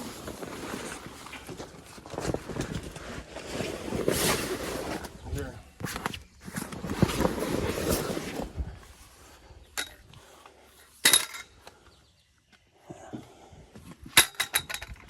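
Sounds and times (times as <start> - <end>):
rustling: 0.0 - 9.6
clinks: 11.0 - 11.6, 14.2 - 15.0.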